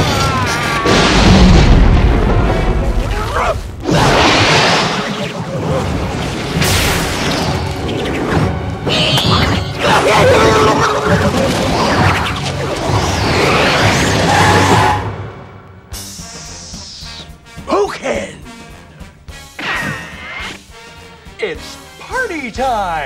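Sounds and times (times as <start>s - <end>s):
booms and crashing effects: 0.0s - 8.6s
film music: 0.0s - 23.0s
voice: 21.4s - 23.0s.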